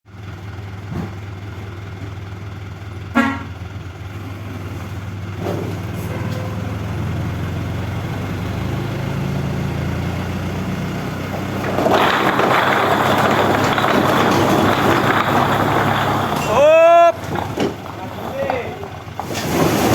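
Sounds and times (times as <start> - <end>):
truck engine running: 0.1 - 19.9
truck horn toot: 3.1 - 3.7.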